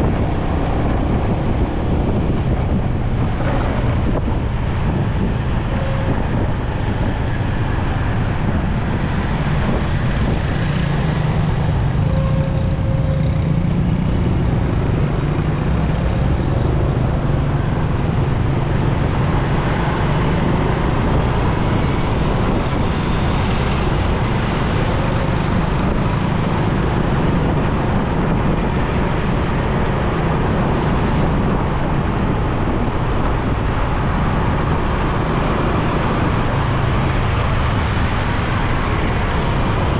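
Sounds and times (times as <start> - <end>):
passing traffic: 0.0 - 39.9
wind noise: 0.0 - 39.9.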